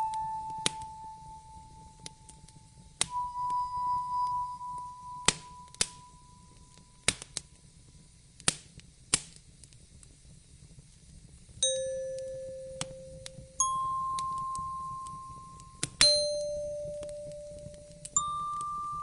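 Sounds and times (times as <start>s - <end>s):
wood fire crackling and popping: 0.0s - 3.2s, 4.1s - 19.0s
soft chime-like note: 0.0s - 7.0s, 11.6s - 19.0s
low hiss: 0.0s - 19.0s.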